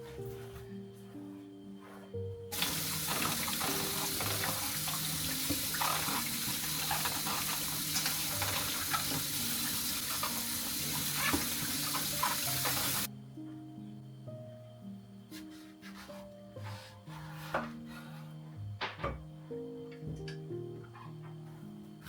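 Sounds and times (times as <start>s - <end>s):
tap water running into sink: 2.5s - 13.1s.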